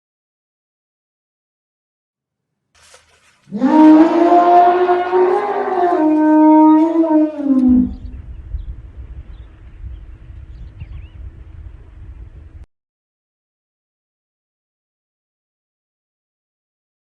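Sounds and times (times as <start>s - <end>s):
long animal call: 3.5s - 8.2s
low rumble: 3.9s - 12.7s.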